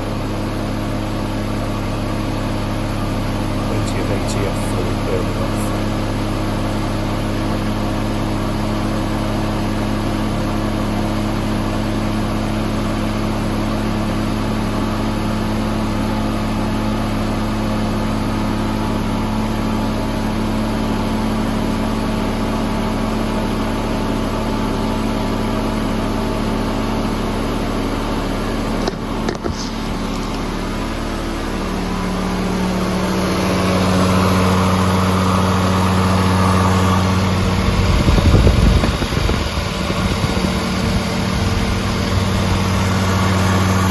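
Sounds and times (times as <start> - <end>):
rotary engine idling: 28.0 - 43.9.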